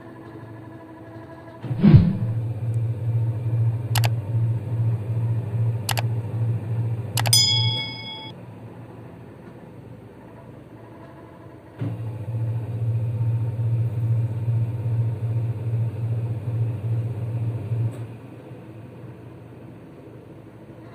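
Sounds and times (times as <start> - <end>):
washing machine motor humming: 2.2 - 8.3, 11.8 - 19.2
motor switch click: 7.2 - 8.2.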